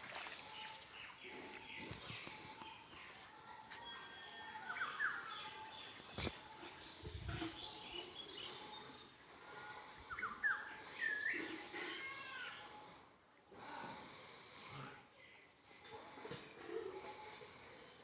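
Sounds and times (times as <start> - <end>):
birds chirping and calling: 0.3 - 12.7.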